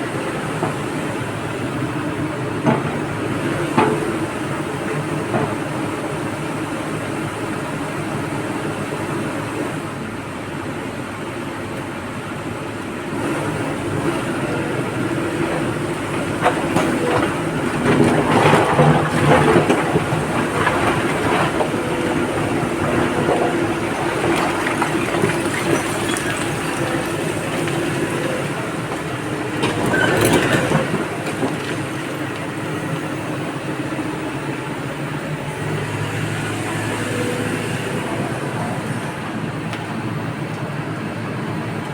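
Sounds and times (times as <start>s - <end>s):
diesel engine running: 12.1s - 41.9s
material clattering into truck: 15.4s - 32.7s.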